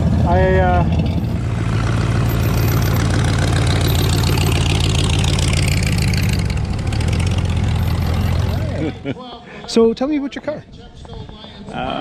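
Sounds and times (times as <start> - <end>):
car engine idling: 0.0 - 9.1.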